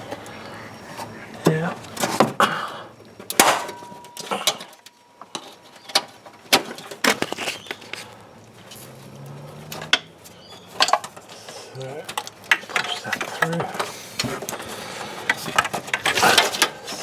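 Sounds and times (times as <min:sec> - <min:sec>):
tools clicking and knocking on plastic: 0:12.0 - 0:17.0.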